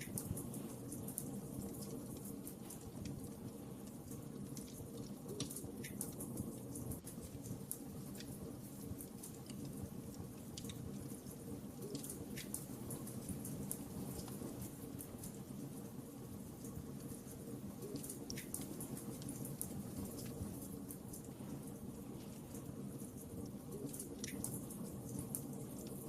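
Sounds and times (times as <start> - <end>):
fire crackles and pops: 0.0 - 26.0
low rumble of flames: 0.0 - 26.0.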